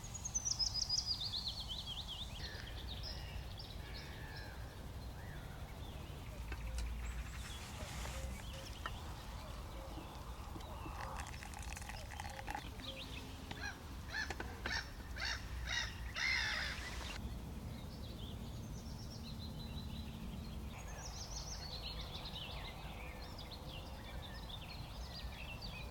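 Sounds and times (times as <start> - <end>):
harsh bird calls: 2.2 - 17.2.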